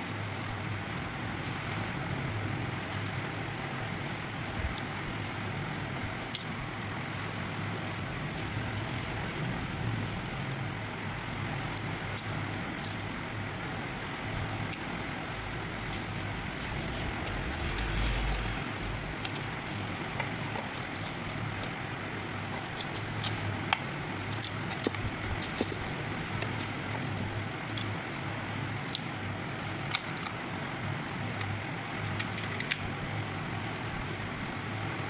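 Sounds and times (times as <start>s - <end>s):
traffic rumble: 7.8s - 22.5s
low hum: 15.3s - 20.3s.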